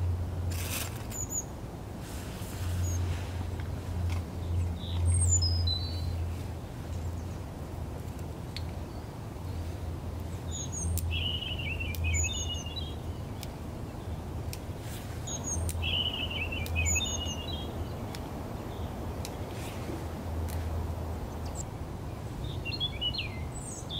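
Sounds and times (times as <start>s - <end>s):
small songbird singing: 1.1s - 1.6s, 2.6s - 3.2s, 4.3s - 7.5s, 8.4s - 19.8s, 20.4s - 23.9s.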